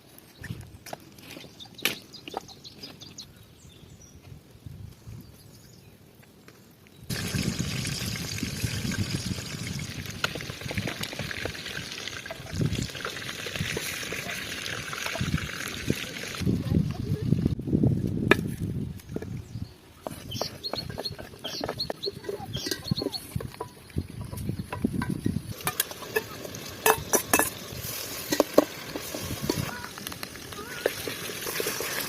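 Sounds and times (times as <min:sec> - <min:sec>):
trickling water: 0:07.1 - 0:16.4, 0:22.0 - 0:29.7.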